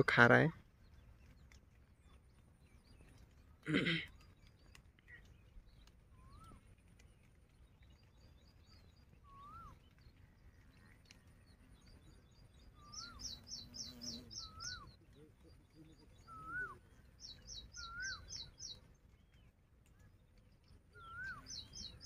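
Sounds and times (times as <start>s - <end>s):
faint outdoor background noise: 0.0s - 22.0s
high bird chirps: 7.6s - 22.0s
bird whistle rising and falling: 9.2s - 9.8s, 16.2s - 16.8s, 17.5s - 18.6s, 20.9s - 22.0s.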